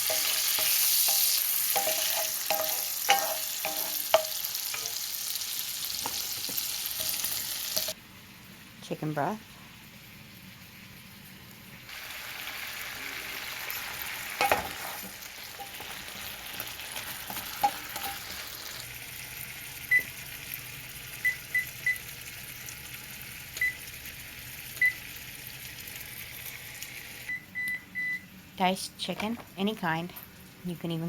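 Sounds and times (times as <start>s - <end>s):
utensil clattering on pan: 0.0s - 5.0s, 6.0s - 8.0s
food sizzling in a pan: 0.0s - 8.7s, 9.5s - 27.3s.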